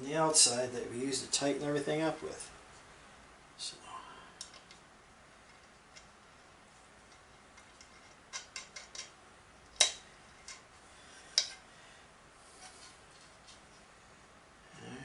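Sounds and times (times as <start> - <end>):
small metal parts clicking: 7.1 - 9.2.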